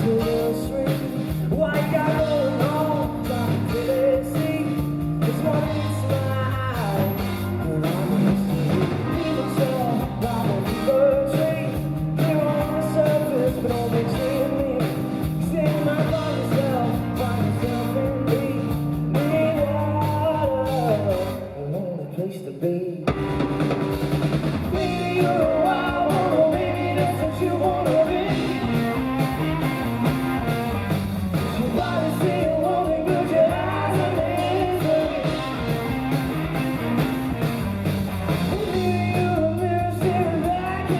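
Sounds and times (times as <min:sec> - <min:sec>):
live rock band playing: 0:00.0 - 0:21.9, 0:23.0 - 0:40.9
lead singer: 0:00.0 - 0:23.5, 0:24.6 - 0:37.6, 0:38.4 - 0:40.9.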